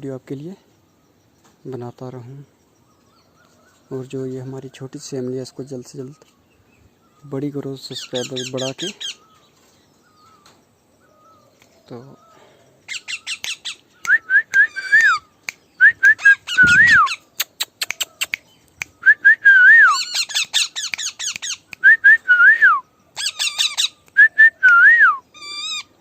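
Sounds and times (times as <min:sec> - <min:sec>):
parrot squawking: 0:08.0 - 0:09.2, 0:12.9 - 0:13.8, 0:19.9 - 0:21.7, 0:23.2 - 0:24.0, 0:25.4 - 0:25.9
parrot whistling a phrase: 0:13.0 - 0:17.2.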